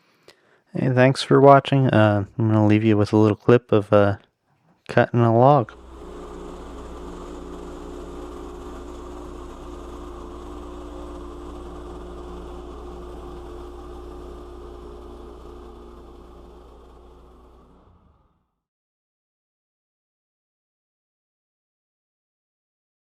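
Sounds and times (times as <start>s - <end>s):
log saw engine running: 5.3s - 18.4s.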